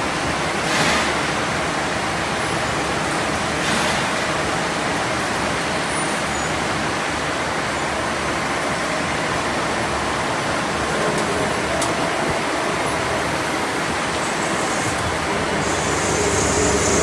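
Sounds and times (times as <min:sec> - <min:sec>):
lathe machining noise: 0:10.7 - 0:17.0.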